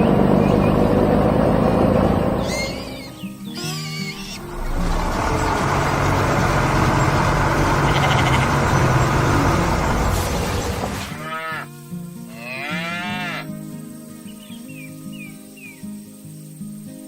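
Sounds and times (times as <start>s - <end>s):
loud rumbling noise: 0.0s - 3.1s, 4.4s - 11.2s
drawn-out animal-like calls: 0.0s - 11.6s
background music: 0.0s - 17.0s.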